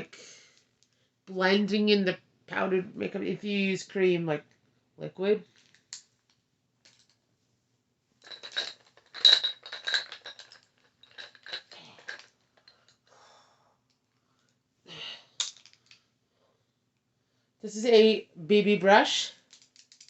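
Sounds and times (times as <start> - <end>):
makeup brushes clicking together: 19.5 - 20.0.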